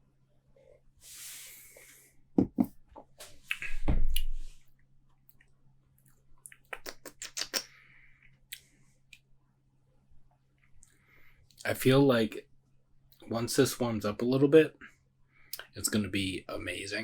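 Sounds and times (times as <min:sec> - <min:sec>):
lip and tongue smacks: 0:03.5 - 0:04.3, 0:06.4 - 0:07.8
mouth clicks: 0:03.5 - 0:04.3, 0:06.4 - 0:07.8.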